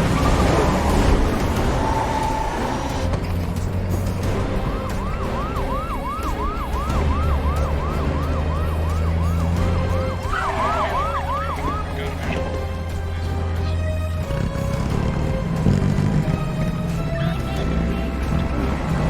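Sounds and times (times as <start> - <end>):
police siren yelping: 0.0 - 3.1, 4.3 - 12.5
highway traffic rumble: 0.0 - 19.0.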